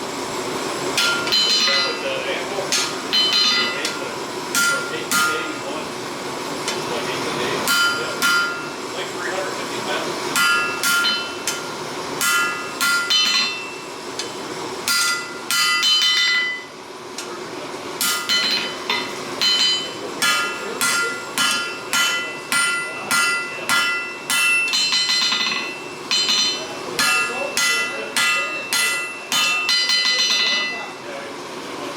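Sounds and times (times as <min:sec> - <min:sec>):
hammer ringing on steel: 0:01.0 - 0:02.1, 0:02.7 - 0:05.6, 0:07.6 - 0:08.8, 0:10.3 - 0:14.0, 0:14.8 - 0:16.7, 0:18.0 - 0:31.0.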